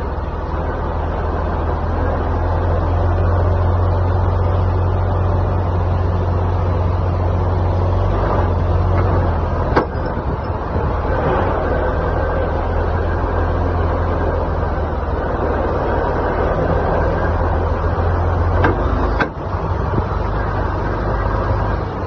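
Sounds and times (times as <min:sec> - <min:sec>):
truck engine drone: 0:00.0 - 0:22.0
driveline clunk: 0:08.9 - 0:10.5, 0:18.5 - 0:19.5.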